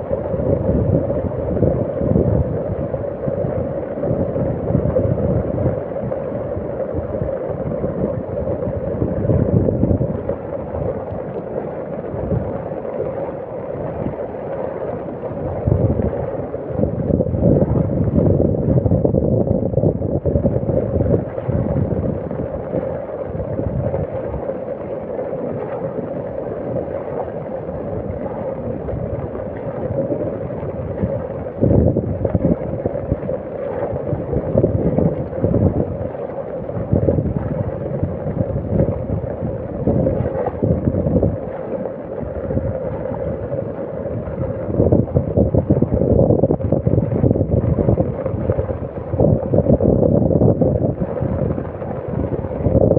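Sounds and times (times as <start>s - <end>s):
wind buffeting the microphone: 0.0s - 52.9s.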